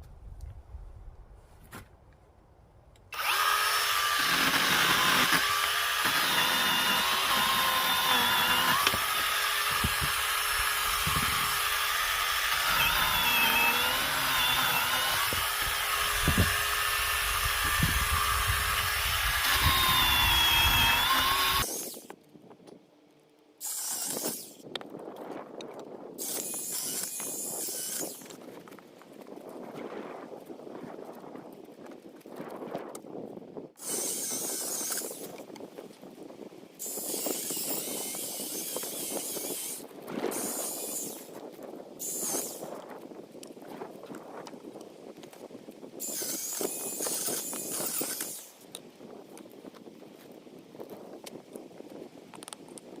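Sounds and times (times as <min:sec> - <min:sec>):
chainsaw cutting logs: 0:03.2 - 0:22.2, 0:23.6 - 0:24.7, 0:26.2 - 0:28.8, 0:33.8 - 0:35.6, 0:36.8 - 0:42.8, 0:46.0 - 0:48.6.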